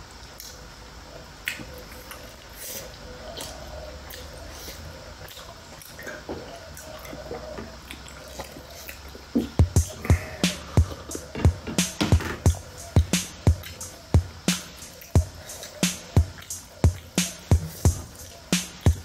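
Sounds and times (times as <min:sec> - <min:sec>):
wet chewing and smacking: 0:01.4 - 0:11.1.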